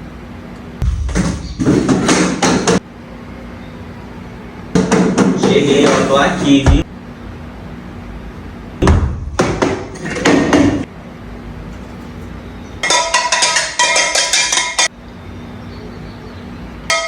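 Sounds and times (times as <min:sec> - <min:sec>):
pots and pans banging together: 0:09.4 - 0:10.9, 0:12.8 - 0:14.9.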